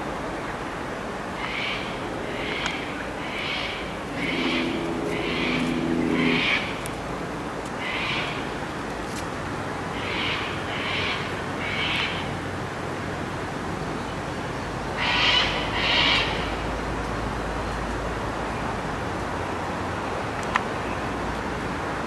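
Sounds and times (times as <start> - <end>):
bird raspy calls: 1.4 - 7.1, 7.8 - 8.8, 9.9 - 12.3, 15.0 - 16.6
steady low hum: 1.8 - 10.6.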